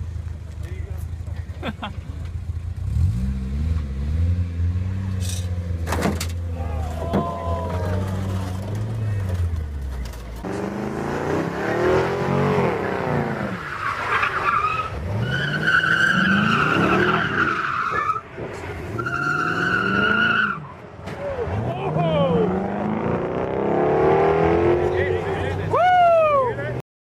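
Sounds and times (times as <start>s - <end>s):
car engine revving: 2.6s - 17.6s, 21.3s - 25.7s.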